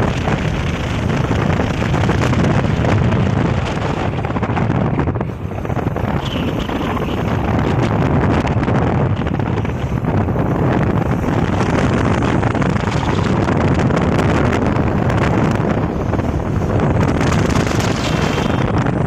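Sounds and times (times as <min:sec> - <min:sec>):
road noise: 0:00.0 - 0:19.0
wind rushing over microphone: 0:00.0 - 0:19.0.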